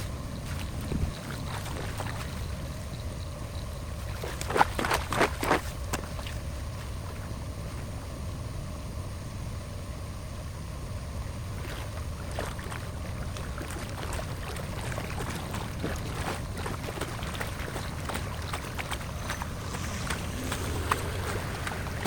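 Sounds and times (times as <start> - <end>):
water rushing through a drain: 11.6 - 22.0.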